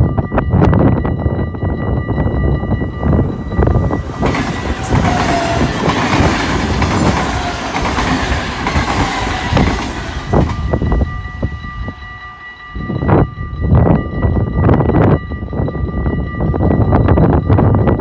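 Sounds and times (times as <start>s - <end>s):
crossing warning bell ringing: 0.0s - 18.0s
train wheel and rail noise: 0.0s - 18.0s
wheels clacking over rail joints: 3.2s - 11.4s.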